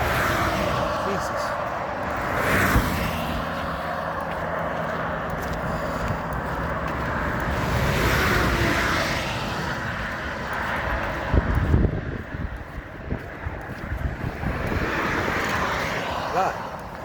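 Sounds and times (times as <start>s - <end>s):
highway traffic passing: 0.0s - 17.0s
wind buffeting microphone: 0.0s - 17.0s.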